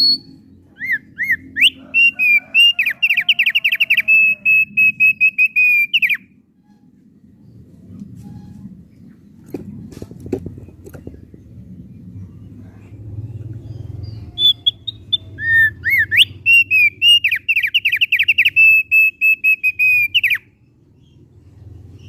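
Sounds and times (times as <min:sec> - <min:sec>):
bird singing whistled notes: 0:00.0 - 0:06.8, 0:13.7 - 0:20.6
low hum: 0:06.2 - 0:16.5.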